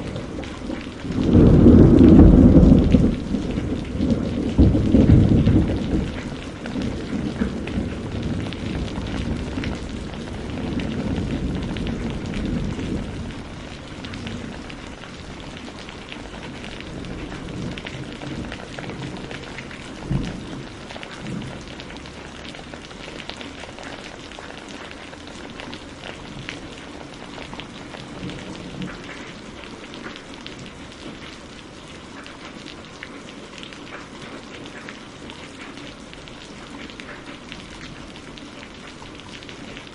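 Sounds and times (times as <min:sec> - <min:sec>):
low thunder rumbling: 0:00.0 - 0:22.9
steady rain: 0:00.0 - 0:39.9.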